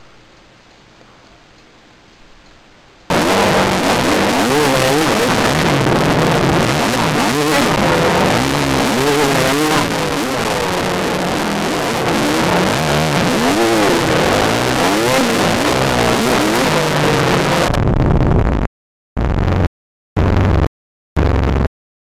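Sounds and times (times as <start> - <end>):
dirt bike engine revving: 3.1 - 17.8
wind noise: 3.1 - 18.7.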